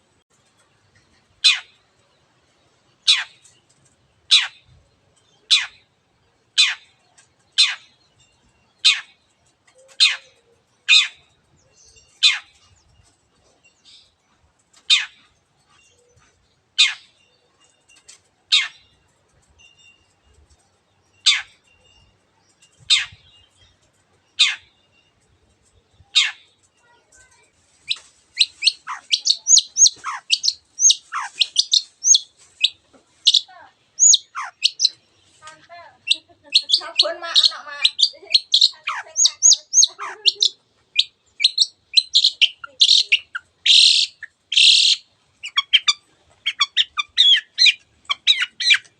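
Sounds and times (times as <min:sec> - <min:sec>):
bird giving sharp downward calls: 0:27.8 - 0:48.9.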